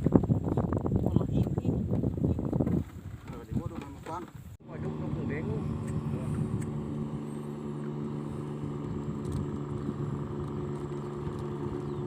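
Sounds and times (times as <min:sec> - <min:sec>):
engine running steadily: 0:04.6 - 0:12.0.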